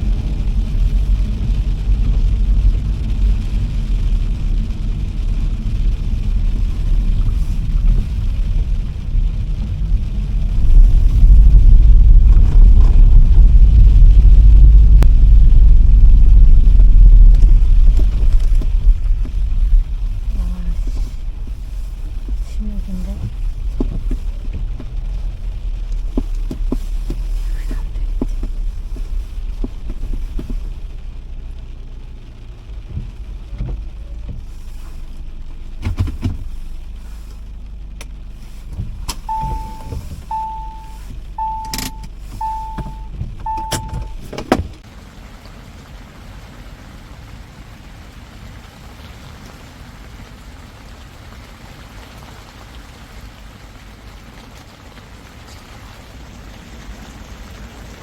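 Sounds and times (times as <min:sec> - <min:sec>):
car engine and road rumble: 0:00.0 - 0:58.0
steady rain: 0:00.0 - 0:58.0
car warning chime beeps: 0:39.1 - 0:44.5
car door thud: 0:42.8 - 0:44.8.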